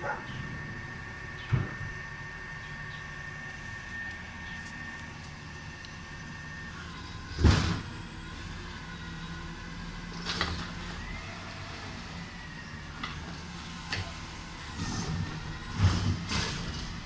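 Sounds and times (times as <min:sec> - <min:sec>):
truck engine hum and whine: 0:00.0 - 0:17.0.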